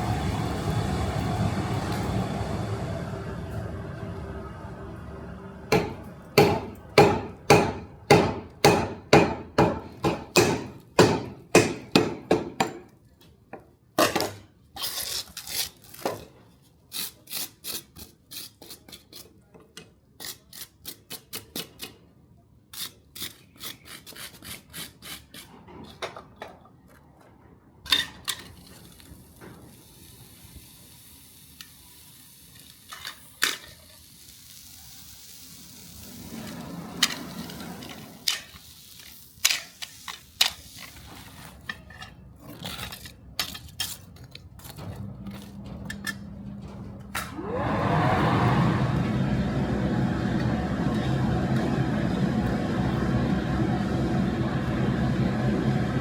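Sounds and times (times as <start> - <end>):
hammer striking metal on anvil: 5.7 - 12.8.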